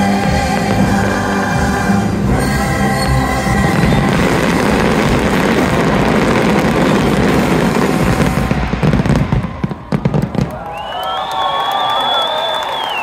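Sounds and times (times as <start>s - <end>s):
fireworks crackling and bursting: 0.0s - 12.2s
crowd cheering: 2.3s - 13.0s
long high whistle: 10.6s - 13.0s.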